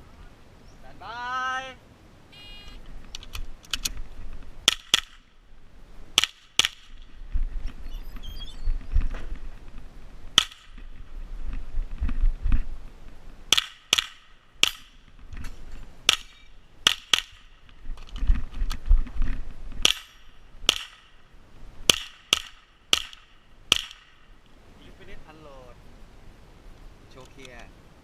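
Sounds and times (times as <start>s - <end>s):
rifle shots cracking: 4.6s - 5.2s, 6.2s - 7.1s, 10.4s - 10.8s, 13.5s - 14.9s, 16.0s - 17.7s, 21.9s - 24.3s.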